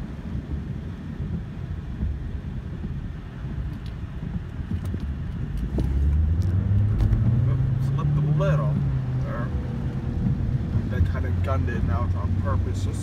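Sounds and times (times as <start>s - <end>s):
tyres rumbling on wet road: 0.0s - 13.0s
car engine revving: 5.4s - 13.0s.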